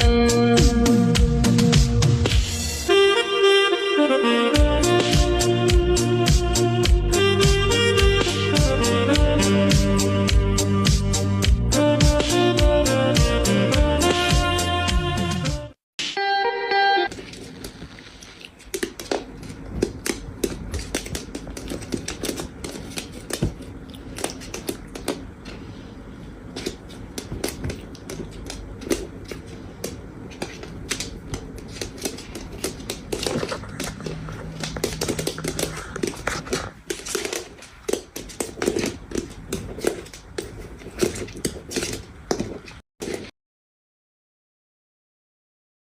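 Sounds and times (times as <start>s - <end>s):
pig crunching feed: 31.6s - 42.0s.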